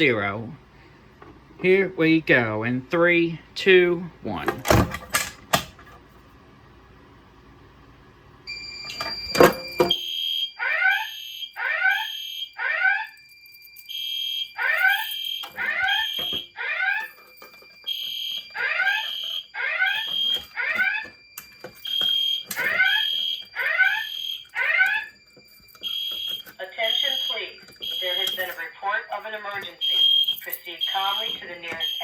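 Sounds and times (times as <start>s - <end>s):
fire alarm evacuation beeps: 8.4s - 32.0s.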